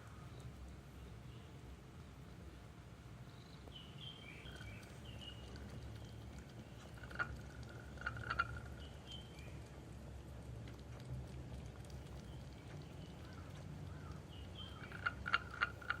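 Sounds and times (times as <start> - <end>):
steady low rumble: 0.0 - 16.0
high bird chirps: 3.4 - 7.1, 12.3 - 16.0.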